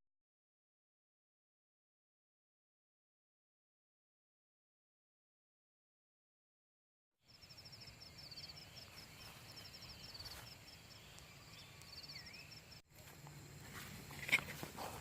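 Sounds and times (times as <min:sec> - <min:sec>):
birds chirping rapidly: 0:07.3 - 0:12.8.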